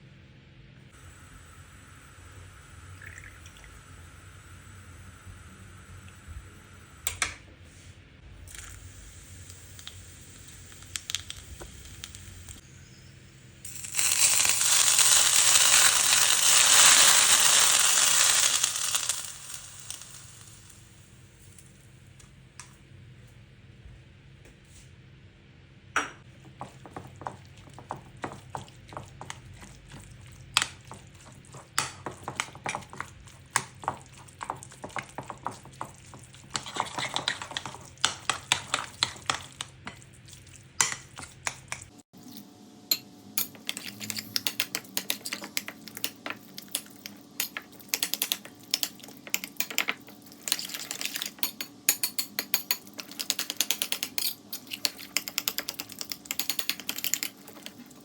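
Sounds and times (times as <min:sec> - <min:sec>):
utensils clinking against dishes: 0:42.9 - 0:58.0.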